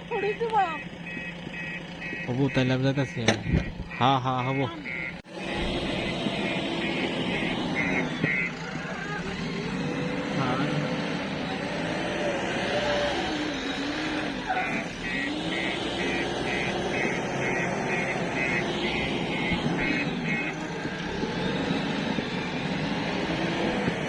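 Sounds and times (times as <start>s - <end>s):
diesel engines revving: 0.0s - 24.0s
short high beeps: 0.2s - 8.6s, 14.5s - 20.6s.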